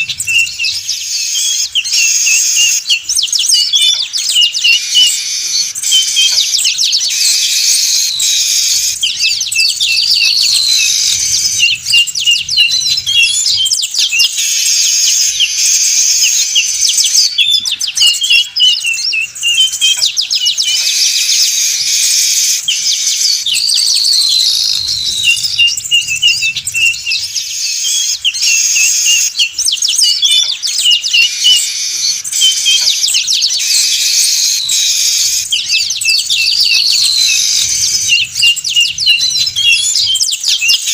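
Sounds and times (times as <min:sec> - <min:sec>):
weaver birds chattering: 0:00.0 - 0:40.9.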